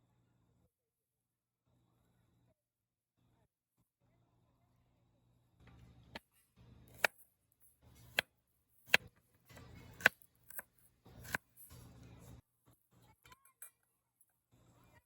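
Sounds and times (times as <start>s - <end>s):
knife cutting food: 6.1s - 12.4s.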